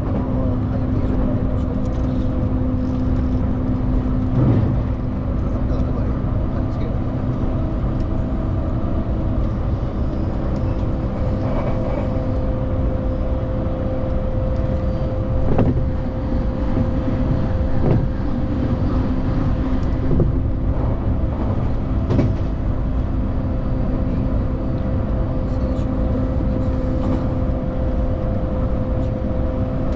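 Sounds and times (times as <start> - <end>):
train rumbling on track: 0.0 - 29.9.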